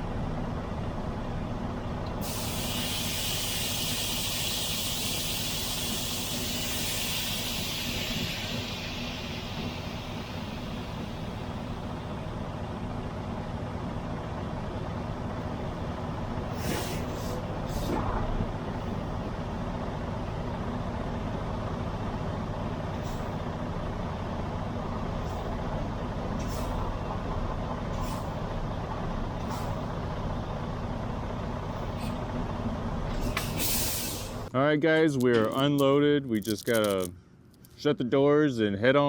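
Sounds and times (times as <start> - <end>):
diesel truck engine idling: 0.0 - 34.5
sharp air hisses: 2.2 - 11.8, 16.5 - 18.0, 33.2 - 34.5.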